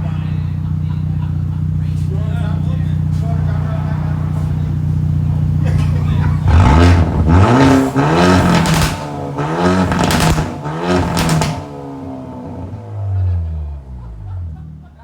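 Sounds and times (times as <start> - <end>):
car engine revving: 0.0 - 14.3
exhaust cracks: 0.4 - 12.8.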